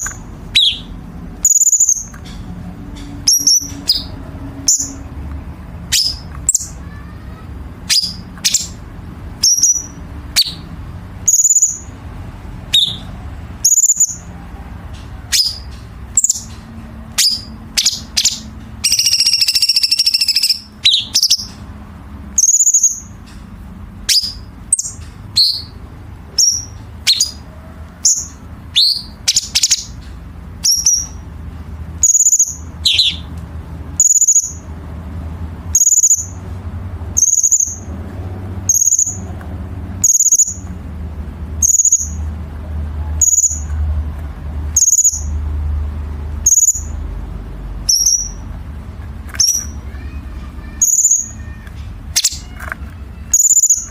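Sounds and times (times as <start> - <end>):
bird high call notes: 0.0 - 2.1, 17.2 - 21.6, 32.0 - 33.3, 49.4 - 53.9.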